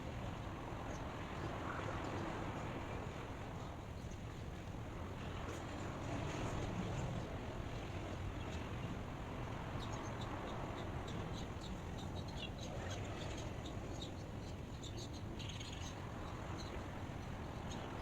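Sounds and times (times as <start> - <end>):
small birds chirping: 9.6 - 18.0.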